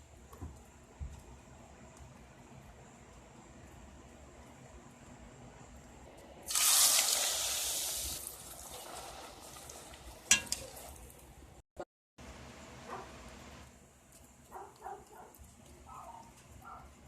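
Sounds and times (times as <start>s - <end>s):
dough sizzling in hot oil: 6.4s - 11.2s.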